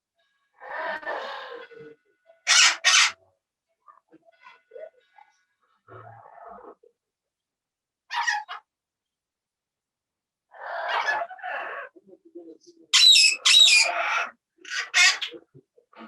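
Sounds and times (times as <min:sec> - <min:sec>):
parrots squawking: 0:02.4 - 0:03.2, 0:08.1 - 0:08.7, 0:10.5 - 0:12.0, 0:12.9 - 0:15.5.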